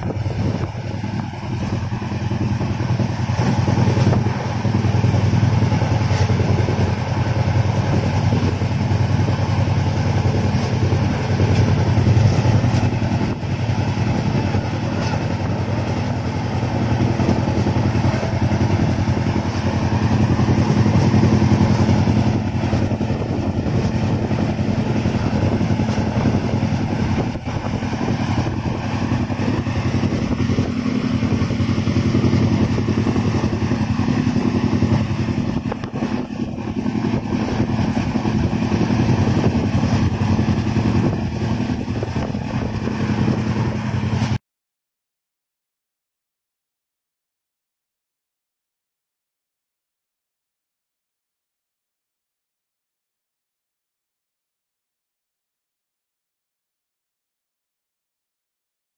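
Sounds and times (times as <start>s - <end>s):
train wheels rumbling on track: 0.0s - 44.4s.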